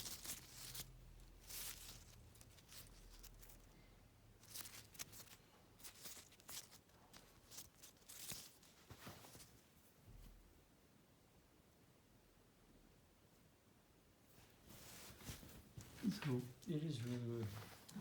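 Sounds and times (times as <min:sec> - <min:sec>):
fabric rustling: 0:00.0 - 0:10.4, 0:14.2 - 0:18.0.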